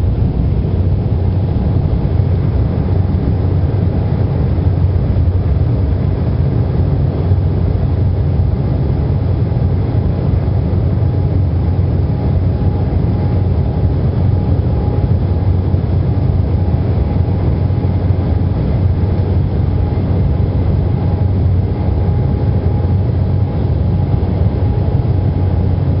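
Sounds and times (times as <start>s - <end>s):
airplane cabin engine drone: 0.0s - 26.0s
faint steady whine: 0.0s - 26.0s.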